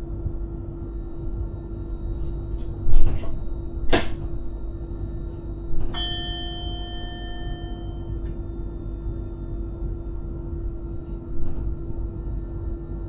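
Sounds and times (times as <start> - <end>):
steady hum: 0.0 - 13.0
train cab rumble: 1.8 - 13.0
bell-like chime: 6.0 - 8.2.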